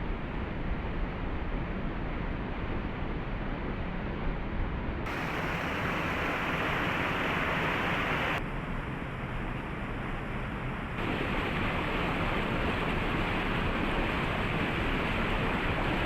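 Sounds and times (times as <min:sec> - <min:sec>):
waterfall rushing: 0:05.1 - 0:08.4, 0:11.0 - 0:12.5.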